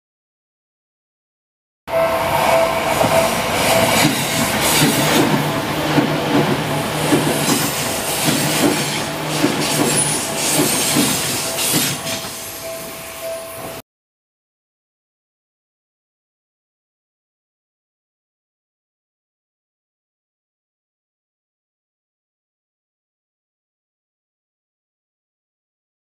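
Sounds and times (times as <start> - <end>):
train wheels clacking over rail joints: 3.0 - 12.5
level crossing bell ringing: 11.2 - 13.8.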